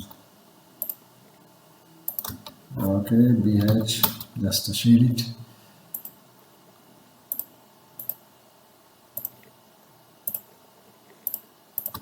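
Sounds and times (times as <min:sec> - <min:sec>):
computer mouse clicking: 0:00.8 - 0:01.0, 0:02.1 - 0:02.6, 0:05.9 - 0:06.2, 0:07.3 - 0:08.2, 0:09.2 - 0:09.5, 0:10.2 - 0:10.5, 0:11.2 - 0:12.0.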